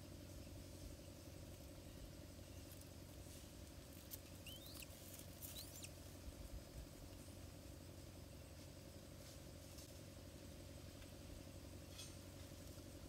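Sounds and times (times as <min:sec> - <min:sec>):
steady low hum: 0:00.0 - 0:13.0
small bird chirps: 0:03.8 - 0:06.4.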